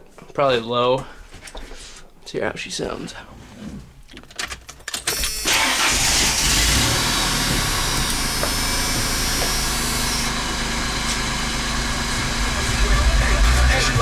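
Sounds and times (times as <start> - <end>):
engine starting and idling: 5.1 - 14.0.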